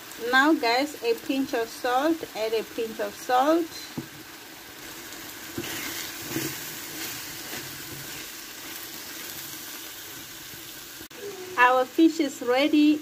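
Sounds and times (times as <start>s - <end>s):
fish sizzling in a frying pan: 0.0s - 13.0s.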